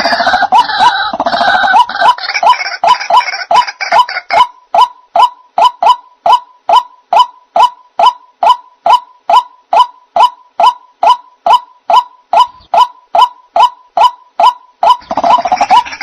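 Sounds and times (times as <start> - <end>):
waterhen call: 0.0 - 16.0.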